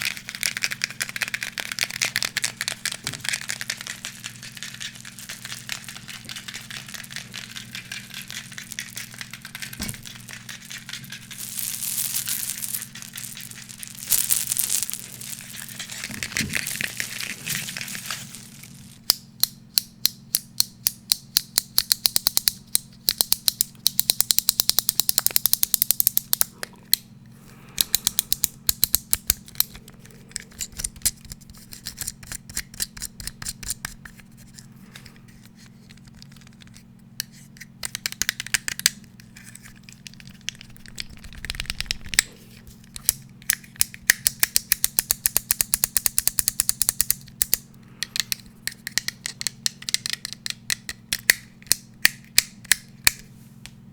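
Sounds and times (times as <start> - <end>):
fast tapping on hard object: 40.4 - 42.2.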